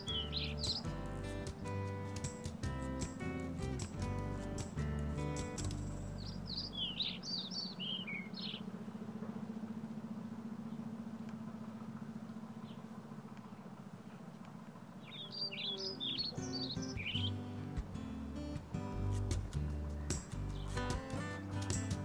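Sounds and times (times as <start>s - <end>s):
songbird twittering: 0.0s - 1.7s, 6.0s - 8.8s, 12.1s - 14.2s, 15.0s - 17.4s
steady low hum: 0.0s - 22.0s.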